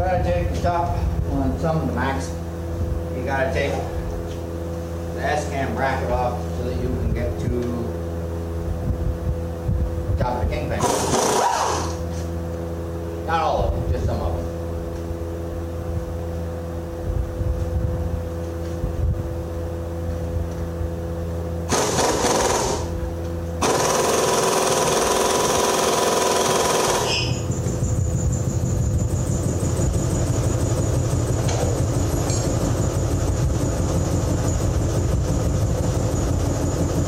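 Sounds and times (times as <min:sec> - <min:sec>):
compressor hum: 0:00.0 - 0:37.0
air impact wrench hammering: 0:10.8 - 0:12.2, 0:21.6 - 0:33.0.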